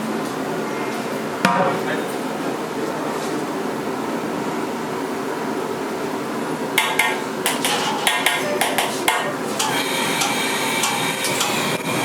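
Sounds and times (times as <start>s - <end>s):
steady background hum: 0.0s - 12.0s
metal cookware clanging: 6.8s - 11.8s.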